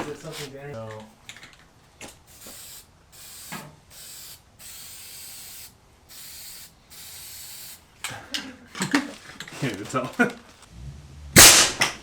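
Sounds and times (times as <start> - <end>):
aerosol spray hissing: 2.3 - 7.9.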